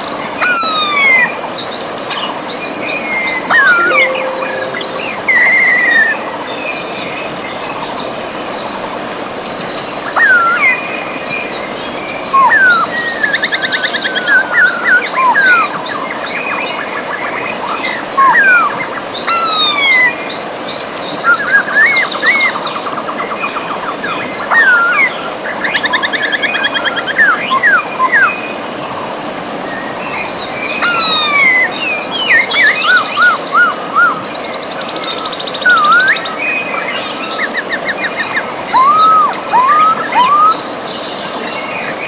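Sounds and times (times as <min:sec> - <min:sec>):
river water running: 0:22.4 - 0:42.0.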